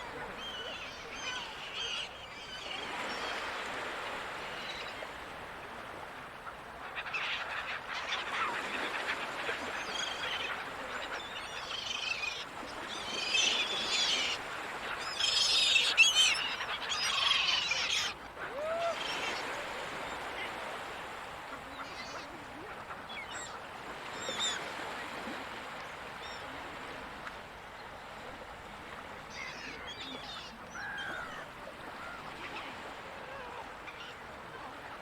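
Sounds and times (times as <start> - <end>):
gulls calling: 7.0 - 24.8.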